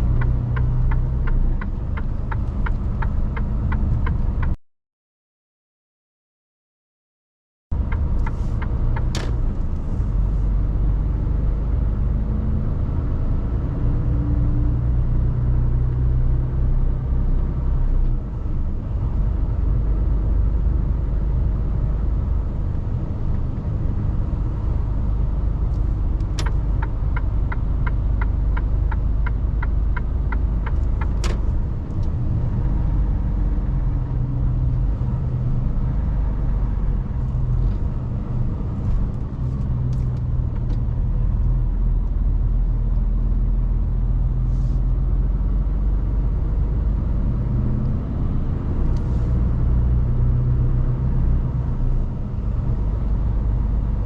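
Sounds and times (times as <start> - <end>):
diesel truck engine droning: 0.0 - 4.6.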